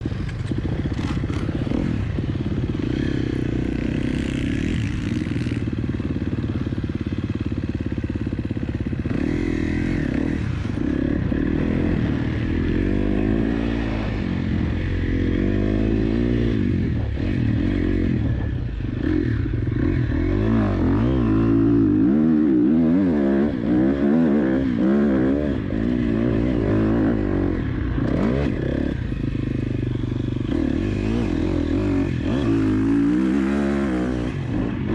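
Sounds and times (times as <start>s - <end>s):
motocross engine revving: 9.0s - 34.9s.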